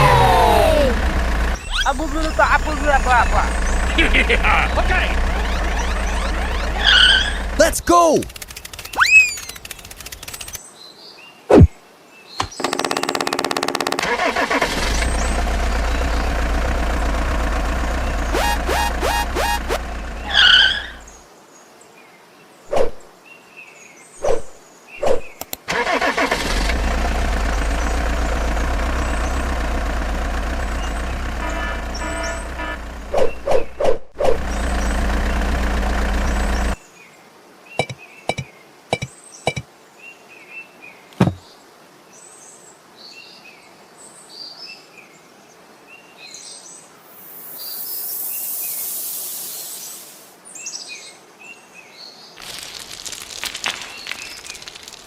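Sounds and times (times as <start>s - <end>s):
motor running: 0.0s - 10.6s, 12.4s - 21.1s, 26.3s - 33.4s, 34.3s - 36.8s
birds chirping: 0.0s - 10.7s, 11.5s - 21.3s, 27.3s - 33.8s, 34.4s - 36.8s, 37.8s - 39.7s
hiss: 47.1s - 50.4s.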